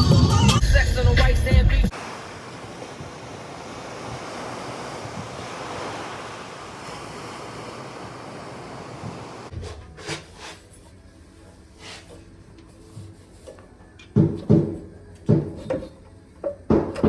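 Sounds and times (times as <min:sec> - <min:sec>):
steady rushing noise: 0:01.9 - 0:09.5.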